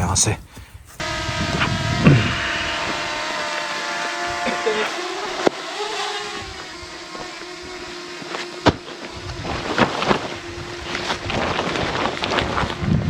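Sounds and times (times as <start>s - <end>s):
wind buffeting microphone: 0.0s - 3.2s, 10.4s - 13.0s
steady hum: 0.0s - 13.0s.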